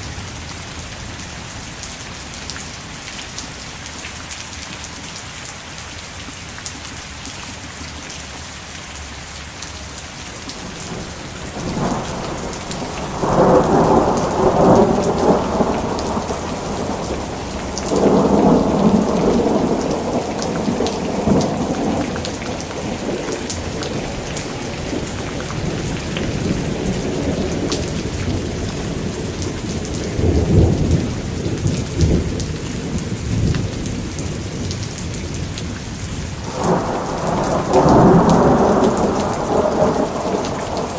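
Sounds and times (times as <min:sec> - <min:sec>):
steady rain: 0:00.0 - 0:40.9
thunder rolling: 0:10.5 - 0:34.7, 0:36.4 - 0:40.9.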